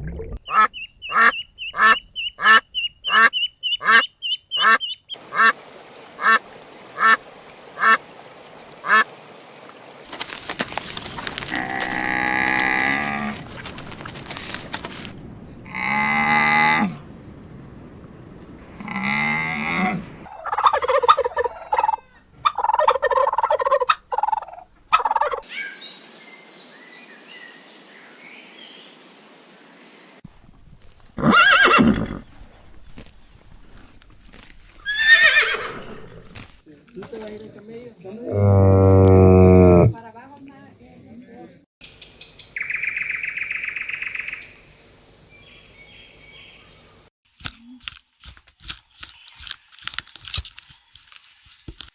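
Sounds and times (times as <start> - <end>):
rapid choppy animal calls: 0.4 - 5.6
drawn-out farm animal calls: 0.5 - 5.5.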